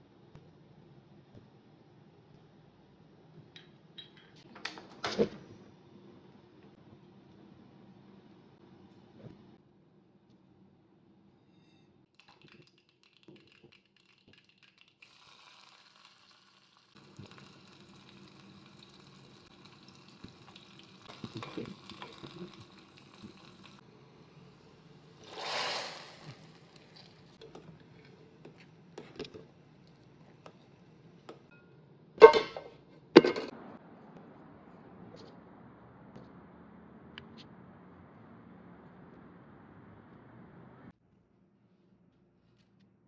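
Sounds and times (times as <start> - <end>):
utensils clinking and tapping: 3.6 - 4.5, 31.5 - 33.5
food sizzling in a pan: 15.0 - 23.8, 25.1 - 27.4
burst of hiss: 25.2 - 26.5.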